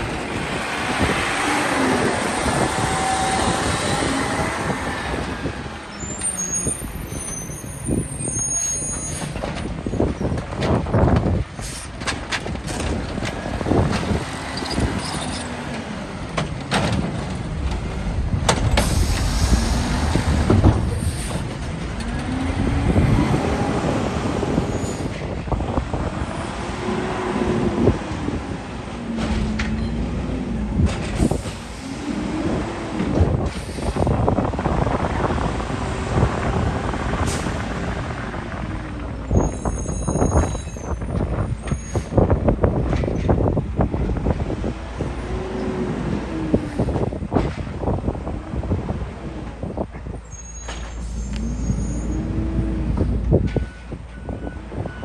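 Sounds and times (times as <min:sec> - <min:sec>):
garbage truck engine revving: 0:00.0 - 0:07.0
sharp bangs and knocks: 0:09.2 - 0:23.0
air brakes hissing: 0:18.7 - 0:21.6, 0:31.1 - 0:32.0, 0:33.5 - 0:34.2, 0:50.3 - 0:52.3.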